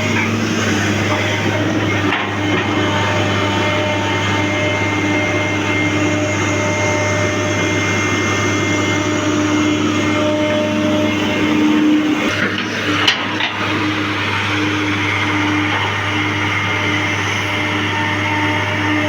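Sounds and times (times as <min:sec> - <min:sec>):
excavator diesel engine hum: 0:00.0 - 0:19.0
hydraulic whine: 0:00.0 - 0:19.0.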